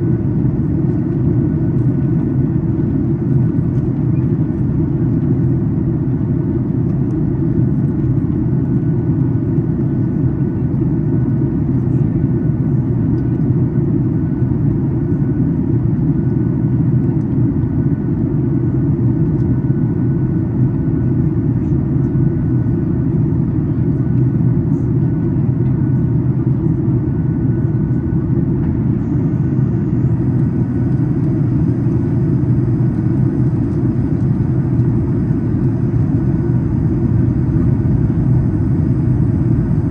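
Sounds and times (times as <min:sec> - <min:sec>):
airplane cabin rumble: 0:18.7 - 0:39.9.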